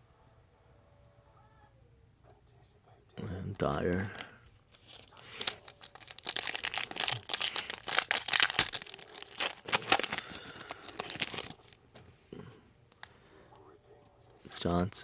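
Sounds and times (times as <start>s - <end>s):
plastic wrapper tearing and crinkling: 4.7s - 11.8s.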